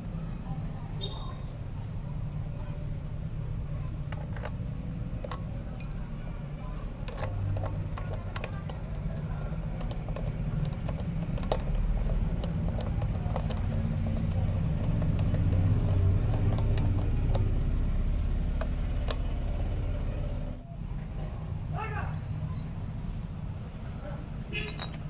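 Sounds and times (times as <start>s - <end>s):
scooter engine running: 1.0s - 25.0s.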